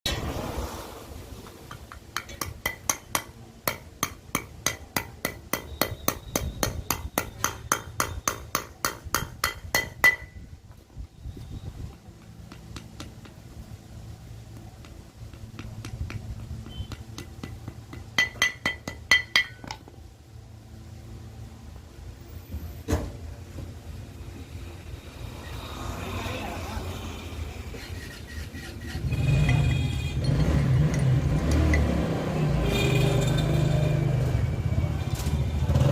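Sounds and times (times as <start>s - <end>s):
hammer striking metal: 1.7s - 10.4s, 15.6s - 19.8s.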